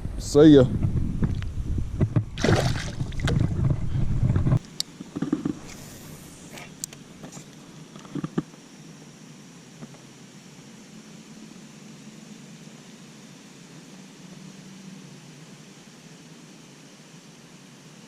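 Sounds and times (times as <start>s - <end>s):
wind rumbling on microphone: 0.0s - 4.6s
water sounds: 2.2s - 4.6s
faint hiss: 4.6s - 18.0s.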